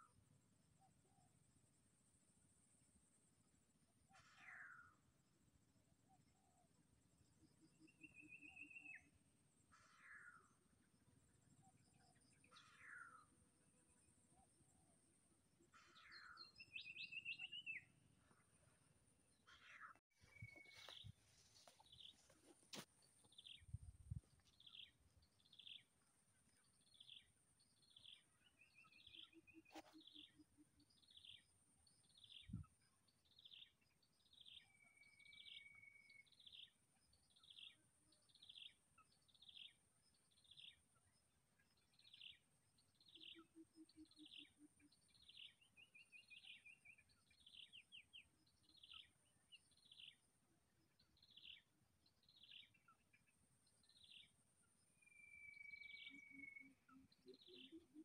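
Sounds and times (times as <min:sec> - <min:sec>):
bird chirping: 0:07.4 - 0:09.2, 0:15.7 - 0:58.0.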